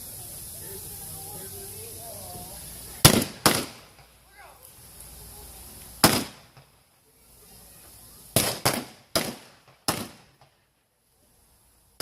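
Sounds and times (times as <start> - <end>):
blank gunshots with echo: 3.0 - 3.8, 6.0 - 6.4, 8.4 - 10.4.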